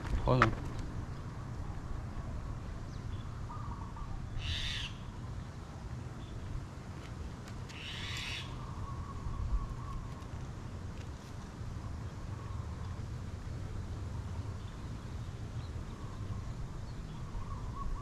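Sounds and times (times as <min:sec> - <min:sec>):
bird calling: 0:03.1 - 0:05.2, 0:07.7 - 0:10.3, 0:17.1 - 0:18.0.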